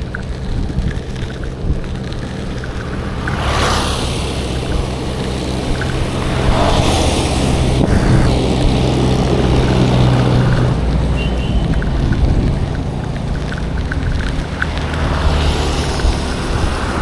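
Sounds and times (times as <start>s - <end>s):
road and wind noise: 0.0s - 17.0s
vehicle engine hum: 0.0s - 17.0s.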